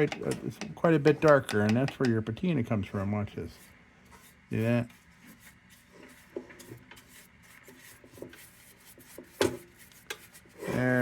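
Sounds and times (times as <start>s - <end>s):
rag rubbing on tin lantern: 2.9s - 11.0s.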